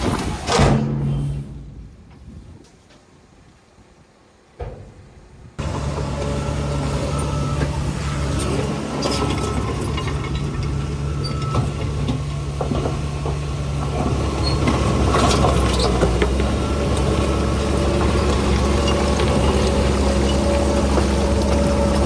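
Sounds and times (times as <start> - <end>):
heavy diesel engine running: 5.6 - 22.0.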